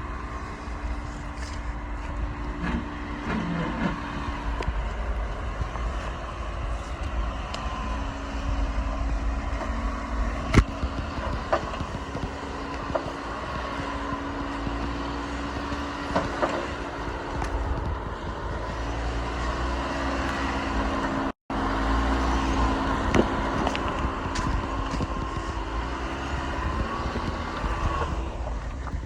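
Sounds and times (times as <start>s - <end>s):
clunks and knocks: 0.0s - 21.4s
car engine running: 0.0s - 29.0s.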